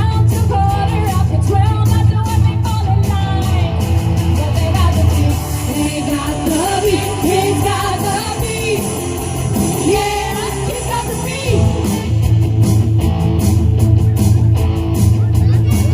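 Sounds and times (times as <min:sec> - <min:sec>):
woman singing lead vocals: 0:00.0 - 0:12.1
pop-rock band playing: 0:00.0 - 0:15.9.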